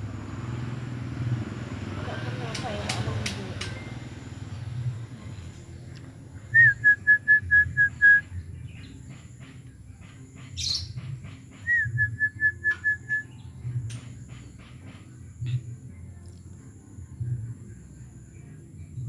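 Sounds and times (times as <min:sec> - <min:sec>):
bird whistling call: 0:06.5 - 0:08.3, 0:10.6 - 0:10.9, 0:11.6 - 0:13.4.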